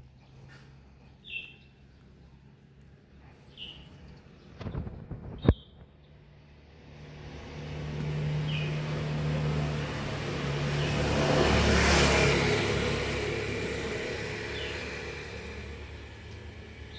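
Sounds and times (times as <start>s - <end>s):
bird chirping: 0.0s - 2.5s, 3.3s - 6.2s, 8.3s - 8.9s, 14.4s - 15.3s
vehicle passing: 6.2s - 16.9s.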